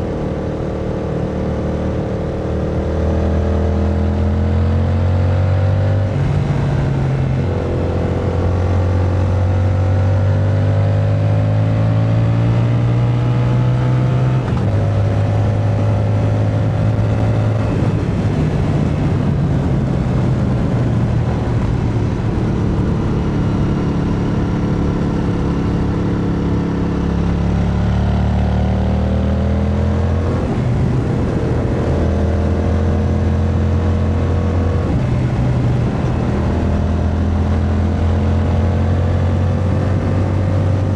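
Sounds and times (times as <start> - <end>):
motorcycle engine accelerating: 0.0 - 40.9
wind rushing: 30.0 - 33.4.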